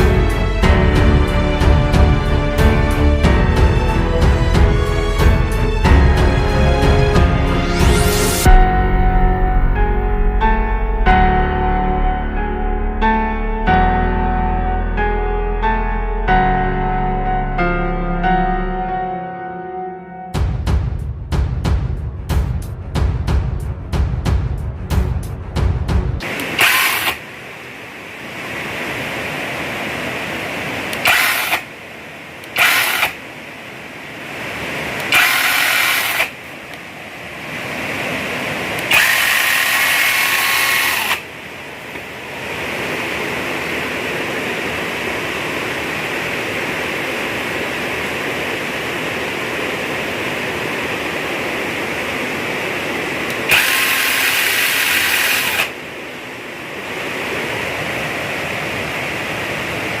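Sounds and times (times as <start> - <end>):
electric chainsaw running: 26.2 - 27.3, 31.0 - 31.7, 32.5 - 33.2, 35.0 - 36.4, 38.8 - 41.3, 53.3 - 55.8.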